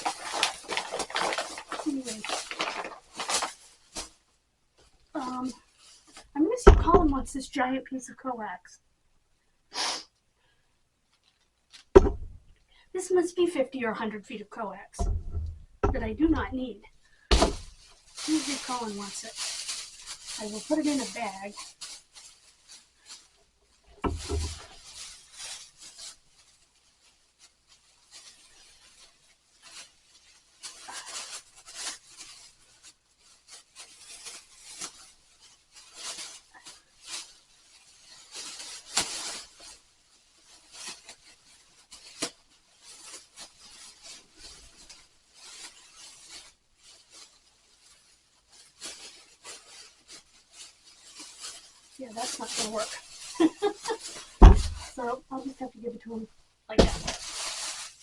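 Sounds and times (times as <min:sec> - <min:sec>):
plastic bag rustling: 0:00.0 - 0:07.6, 0:10.4 - 0:58.0
thump: 0:12.0 - 0:12.4, 0:15.0 - 0:16.4, 0:17.3 - 0:17.7, 0:54.4 - 0:54.9, 0:56.8 - 0:57.2.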